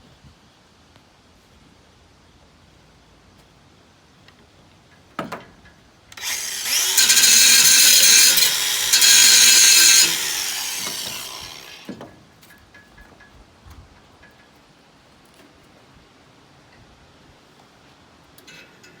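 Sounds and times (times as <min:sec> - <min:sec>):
angle grinder grinding metal: 0:06.2 - 0:11.9.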